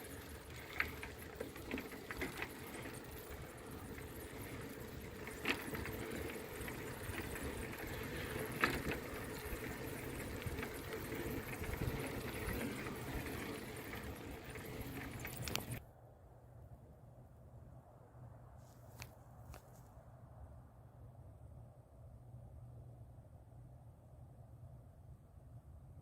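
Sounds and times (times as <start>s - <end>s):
bicycle clicks and rattles: 0.0s - 15.8s
bicycle tyre road rumble: 0.0s - 15.8s.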